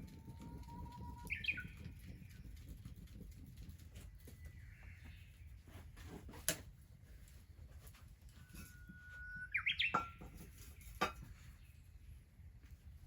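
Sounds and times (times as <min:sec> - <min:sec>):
bird singing: 0:00.1 - 0:02.5, 0:08.4 - 0:11.8.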